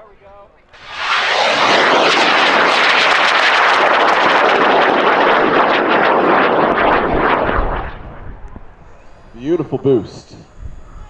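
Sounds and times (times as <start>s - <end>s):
rocket motor roaring: 0.8s - 9.4s.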